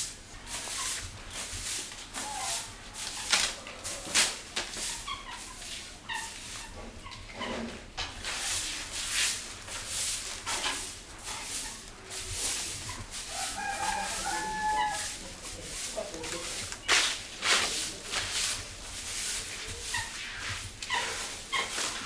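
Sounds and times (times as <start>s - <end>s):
broom sweeping ground: 0.0s - 7.0s, 7.8s - 22.0s
rooster crowing: 13.3s - 15.3s.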